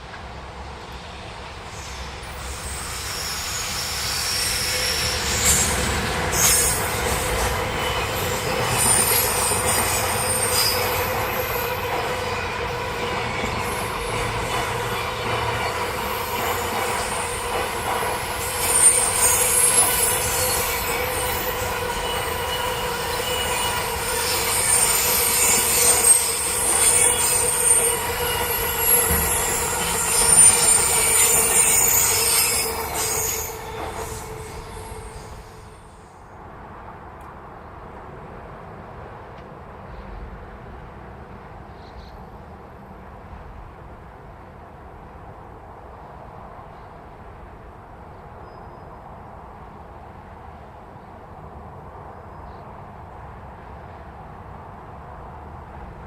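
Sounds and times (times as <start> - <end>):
train running past: 0.0 - 56.0
wheels squealing against rails: 1.0 - 36.3, 48.4 - 49.2.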